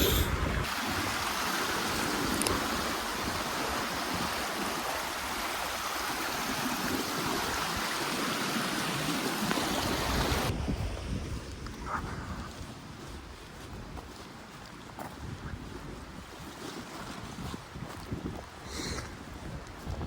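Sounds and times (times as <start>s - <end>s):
river water flowing: 0.0s - 10.6s.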